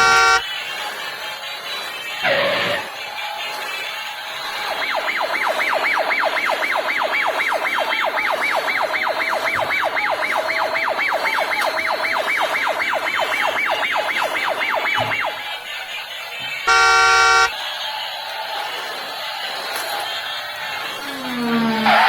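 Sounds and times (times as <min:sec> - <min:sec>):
toy electronic siren wailing: 0:00.0 - 0:00.4, 0:04.3 - 0:15.8, 0:16.7 - 0:17.6, 0:20.9 - 0:22.0.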